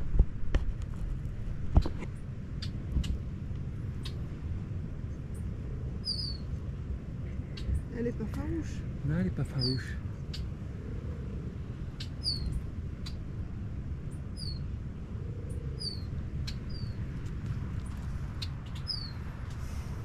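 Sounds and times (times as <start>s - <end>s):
wind rumble on microphone: 0.0s - 20.0s
small bird chirping: 6.0s - 6.5s, 9.5s - 10.5s, 12.0s - 13.2s, 14.3s - 14.7s, 15.5s - 17.0s, 18.4s - 19.2s.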